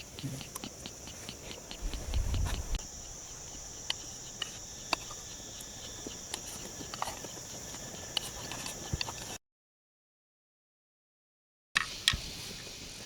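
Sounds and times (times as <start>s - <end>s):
insects trilling: 0.0s - 9.4s.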